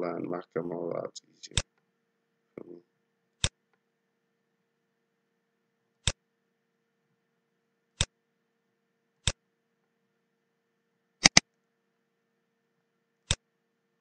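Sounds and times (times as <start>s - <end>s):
faint steady hum: 0.0s - 14.0s
mouse button clicks: 11.2s - 11.4s.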